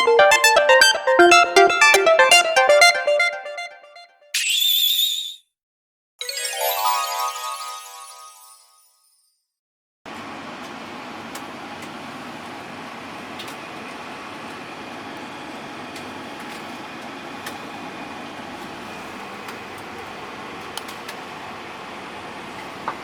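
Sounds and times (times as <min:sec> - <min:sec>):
bus engine and ventilation hum: 0:10.1 - 0:23.0.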